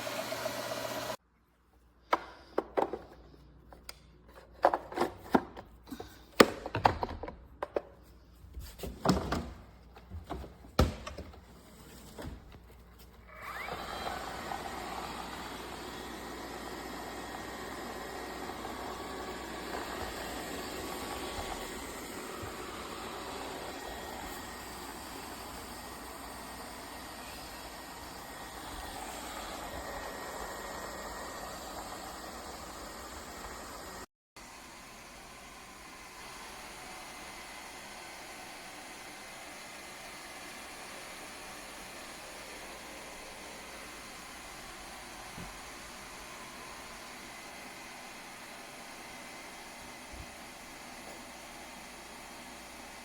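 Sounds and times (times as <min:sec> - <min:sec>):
robot vacuum motor whirring: 0:13.3 - 0:34.1.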